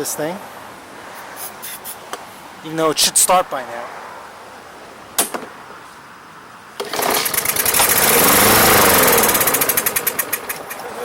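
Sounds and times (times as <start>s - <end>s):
lawn mower engine sputtering: 6.8s - 11.0s.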